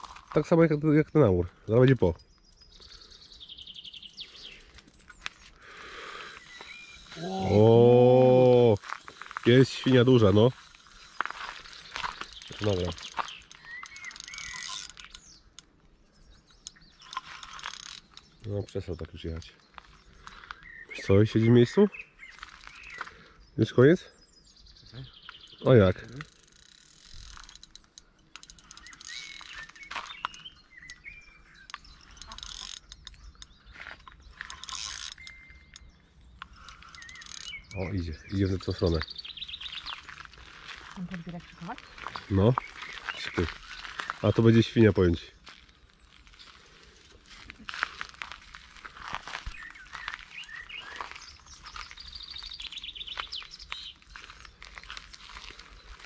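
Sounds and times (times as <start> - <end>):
small birds chirping: 0.0 - 56.0
faint clicks and ticks: 8.7 - 20.7, 25.8 - 56.0.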